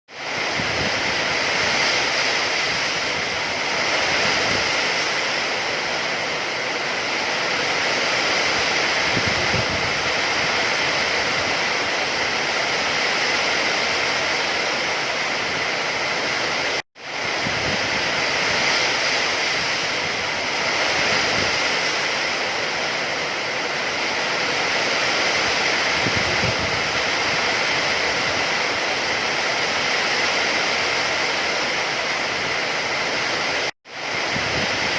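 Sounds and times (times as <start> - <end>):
heavy rain hissing: 0.1 - 34.9.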